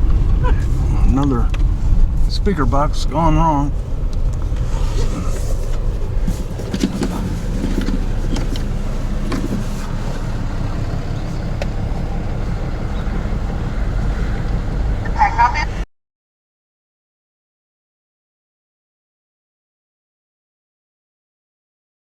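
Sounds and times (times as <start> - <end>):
car engine idling: 0.0 - 15.8.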